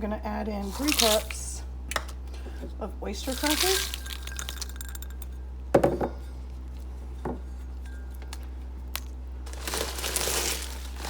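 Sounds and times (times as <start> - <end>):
crackers pouring into pan: 0.7 - 1.4, 3.2 - 5.2, 9.0 - 11.0
cookware clinking: 3.2 - 6.4.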